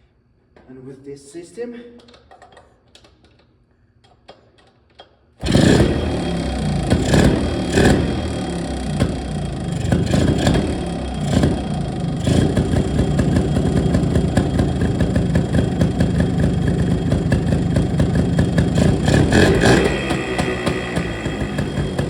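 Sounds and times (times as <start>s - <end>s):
motorcycle engine running: 5.4s - 22.0s.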